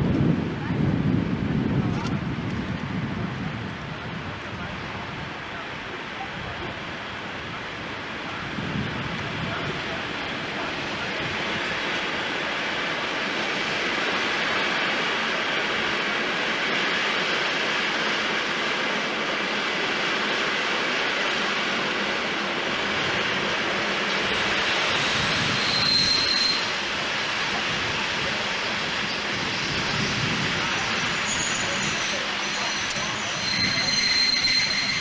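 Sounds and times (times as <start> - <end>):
train rushing: 0.0 - 35.0
high-pitched train squeal: 24.1 - 26.8, 29.0 - 35.0.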